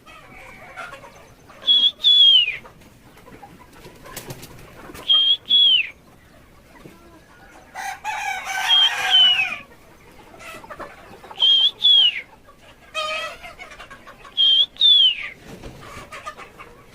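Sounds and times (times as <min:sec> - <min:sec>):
chicken two-part call: 0:00.0 - 0:02.8, 0:04.9 - 0:06.0, 0:06.9 - 0:09.7, 0:10.4 - 0:16.8
harsh low chicken calls: 0:00.0 - 0:16.9.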